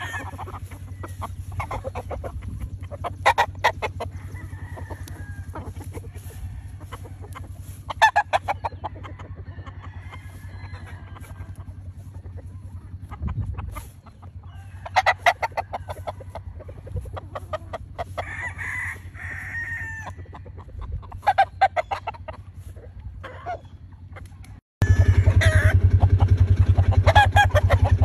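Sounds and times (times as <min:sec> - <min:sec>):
rooster crowing: 0:00.0 - 0:01.4, 0:03.3 - 0:08.2, 0:08.8 - 0:11.7, 0:14.4 - 0:16.7, 0:18.0 - 0:20.3, 0:24.8 - 0:26.0
chickens clucking and cackling: 0:00.0 - 0:28.0.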